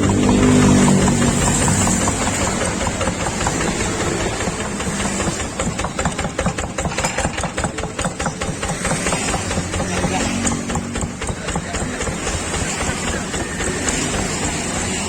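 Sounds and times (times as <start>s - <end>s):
diesel engine knocking steadily: 0.0s - 15.0s.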